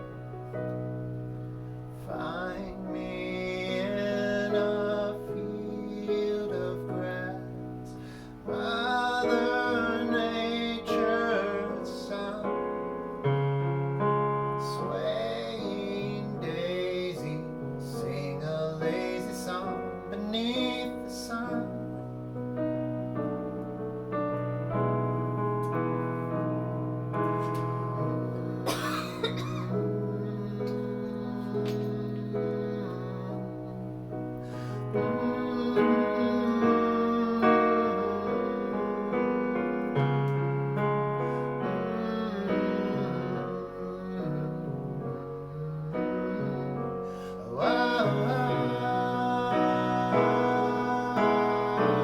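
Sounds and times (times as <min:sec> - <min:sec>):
person singing wordless melody: 0:00.0 - 0:52.0
piano playing sustained chords: 0:00.0 - 0:52.0.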